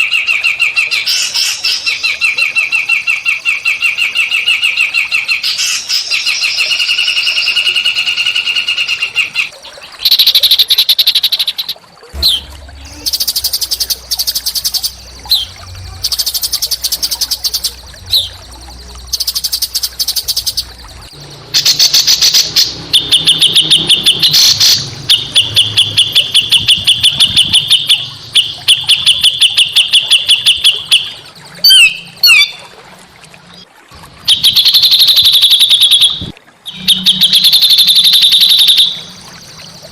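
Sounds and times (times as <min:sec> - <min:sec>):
whistled bird notes: 0:00.2 - 0:32.7, 0:34.3 - 0:39.9
songbird trilling and chattering: 0:10.1 - 0:32.5.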